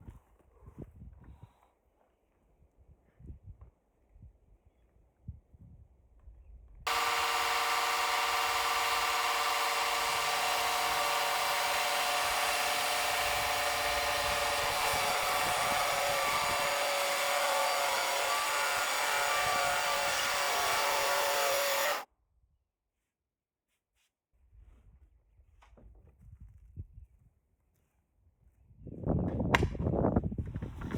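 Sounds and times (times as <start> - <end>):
saw blade cutting log: 6.9 - 22.1.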